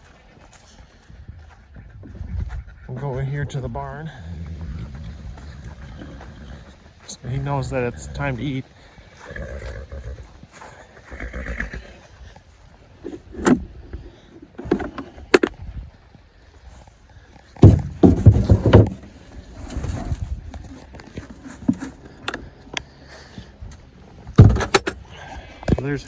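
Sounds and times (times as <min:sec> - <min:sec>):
feed clattering and knocking: 0:17.6 - 0:19.1, 0:24.3 - 0:24.9.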